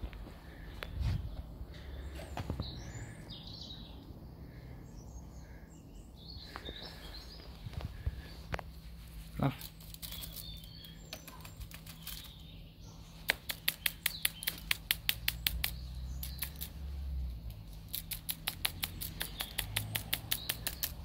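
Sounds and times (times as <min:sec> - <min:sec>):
small bird ticking alarm call: 0:13.3 - 0:16.8, 0:17.5 - 0:21.0.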